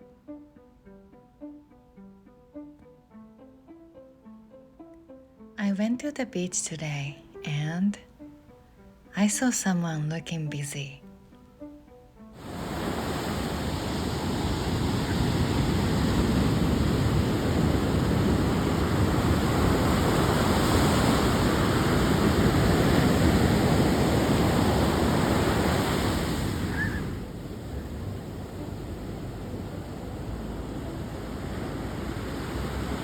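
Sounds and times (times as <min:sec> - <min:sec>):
ocean surf breaking on beach: 0:12.4 - 0:33.0.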